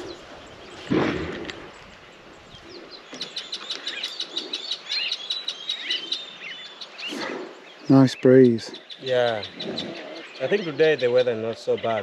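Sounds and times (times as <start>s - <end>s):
birds chirping and twittering: 0.0s - 12.0s.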